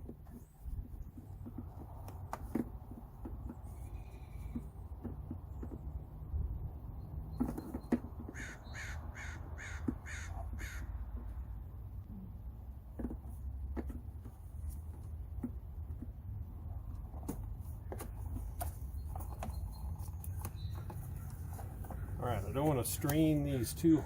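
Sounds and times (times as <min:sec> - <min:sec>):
crow cawing: 0:08.3 - 0:10.9.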